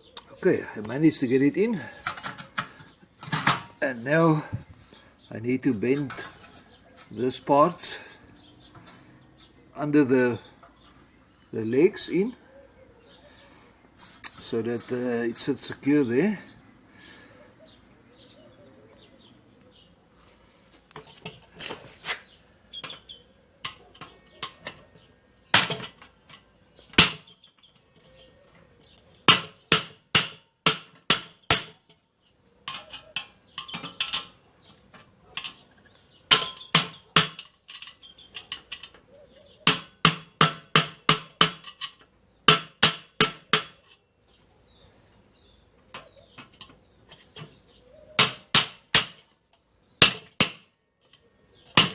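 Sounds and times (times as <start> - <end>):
hammer striking thin steel: 29.3 - 31.8, 39.7 - 41.8, 42.5 - 43.8, 48.2 - 49.2.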